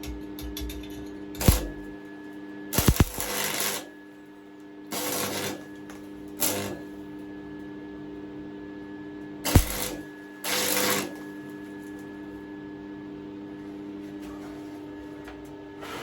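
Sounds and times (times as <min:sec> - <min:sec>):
welder electrical hum: 0:00.0 - 0:16.0
welding arc crackling: 0:01.4 - 0:01.9, 0:02.8 - 0:03.9, 0:04.9 - 0:07.1, 0:09.5 - 0:11.3.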